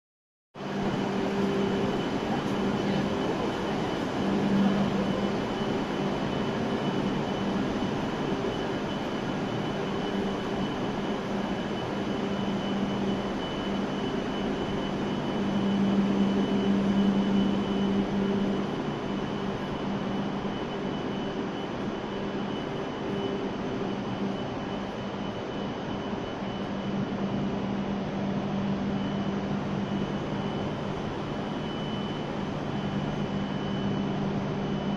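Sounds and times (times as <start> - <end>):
train equipment hum and whine: 0.6 - 34.9.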